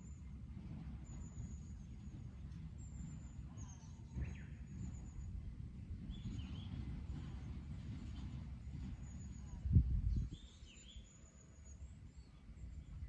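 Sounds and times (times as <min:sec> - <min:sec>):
low rumbling background noise: 0:00.0 - 0:13.0
lower bird chirps: 0:01.0 - 0:05.4, 0:06.0 - 0:07.3, 0:08.8 - 0:13.0.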